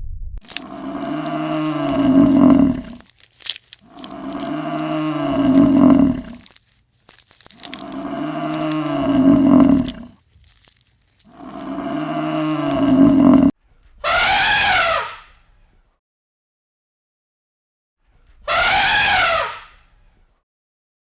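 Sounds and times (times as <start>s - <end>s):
cow mooing: 0.5s - 3.0s, 3.8s - 6.5s, 7.6s - 10.2s, 11.3s - 13.5s
higher animal call: 0.5s - 6.6s, 7.5s - 10.7s, 11.3s - 15.3s, 18.5s - 19.8s.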